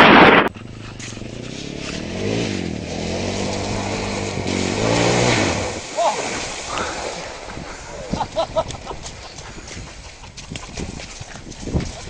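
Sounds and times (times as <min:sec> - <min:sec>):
loud wind noise: 0:00.0 - 0:12.0
off-road vehicle engine revving: 0:00.4 - 0:08.3.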